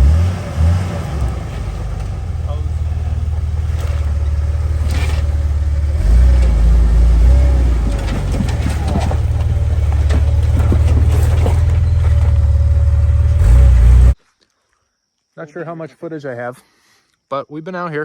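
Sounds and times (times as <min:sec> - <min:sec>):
knocks and rattles from bumps: 0:00.0 - 0:14.2
off-road vehicle engine running: 0:00.0 - 0:14.2.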